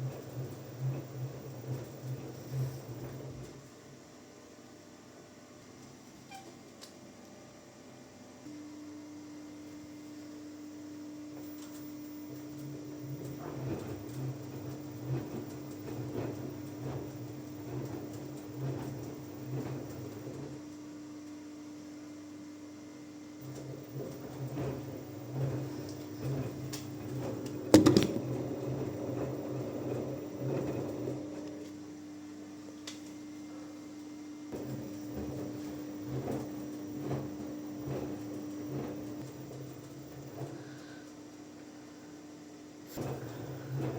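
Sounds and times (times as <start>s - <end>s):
washing machine drum turning: 27.6s - 28.6s
sharp knock: 27.8s - 28.2s.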